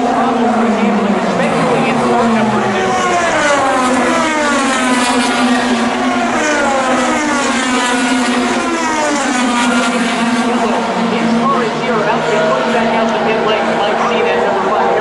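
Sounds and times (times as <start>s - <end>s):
race car engines passing: 0.0s - 15.0s.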